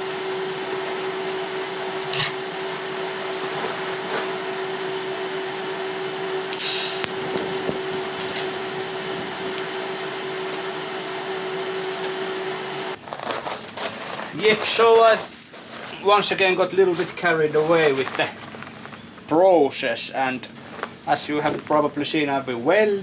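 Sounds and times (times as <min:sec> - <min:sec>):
electric grinder on metal pipe: 0:00.0 - 0:12.9.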